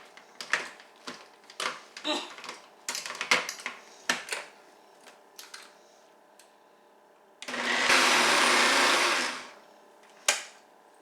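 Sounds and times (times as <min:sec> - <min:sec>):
blender running: 0:07.4 - 0:09.6.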